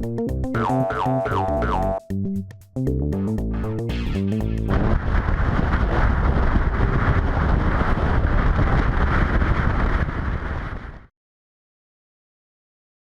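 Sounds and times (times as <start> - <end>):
wind buffeting microphone: 4.4 - 11.1.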